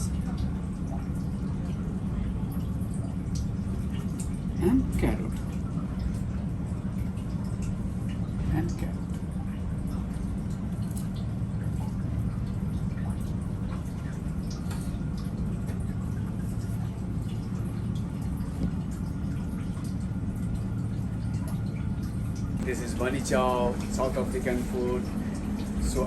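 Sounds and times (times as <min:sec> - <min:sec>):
steady low hum: 0:00.0 - 0:26.0
faint clicks and taps: 0:18.4 - 0:20.0.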